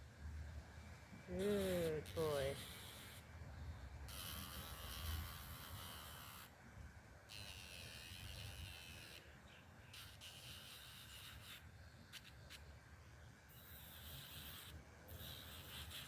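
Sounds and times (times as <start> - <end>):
nail grinder hissing: 7.3 - 9.3, 9.9 - 12.6, 13.6 - 16.0.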